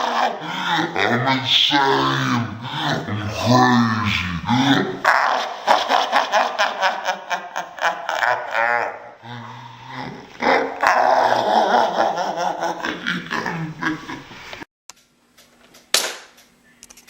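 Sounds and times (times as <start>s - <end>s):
rough growling voice: 0.0s - 5.7s, 8.2s - 14.2s.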